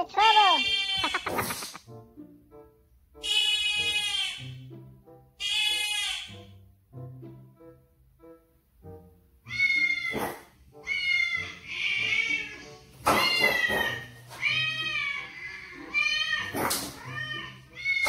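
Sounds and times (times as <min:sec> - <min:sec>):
cat meowing: 0:00.4 - 0:01.4, 0:03.2 - 0:04.6, 0:05.4 - 0:06.4, 0:09.5 - 0:18.0.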